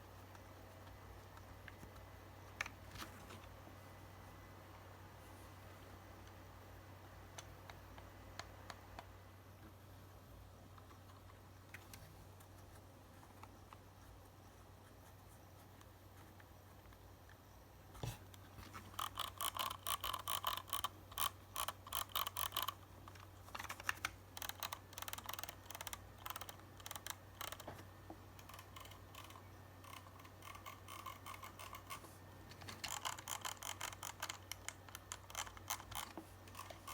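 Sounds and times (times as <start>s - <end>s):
mouse clicking: 18.0s - 36.9s.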